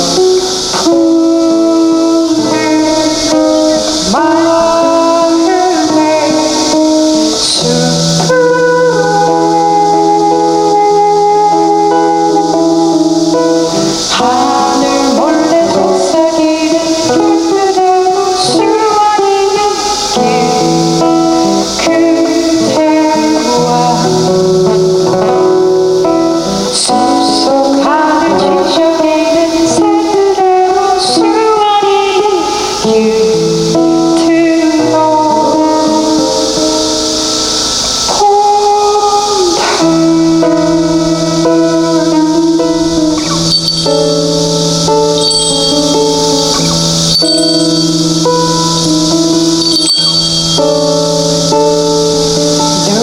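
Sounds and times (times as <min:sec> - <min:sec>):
electric guitar: 0:00.0 - 0:53.0
steady high hiss: 0:00.0 - 0:53.0
live band playing: 0:39.6 - 0:48.4.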